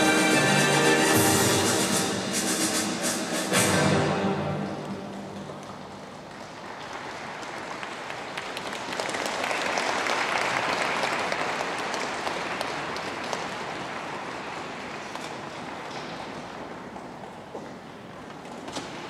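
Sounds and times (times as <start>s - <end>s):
audience applauding: 5.6s - 15.1s.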